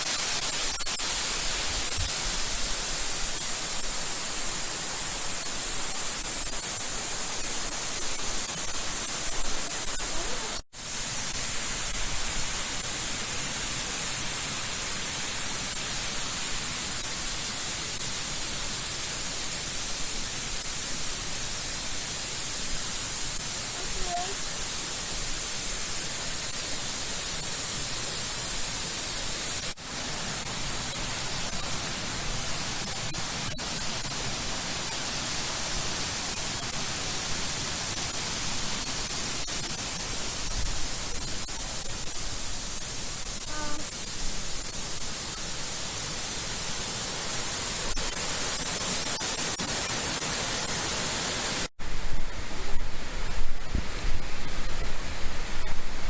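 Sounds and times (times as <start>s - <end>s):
waterfall roaring: 29.8s - 43.0s.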